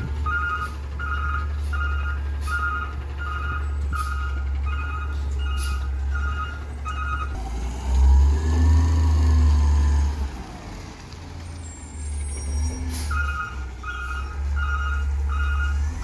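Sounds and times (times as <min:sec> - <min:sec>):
truck reversing beeper: 0:00.0 - 0:07.4, 0:11.5 - 0:16.0
truck engine revving: 0:00.0 - 0:16.0.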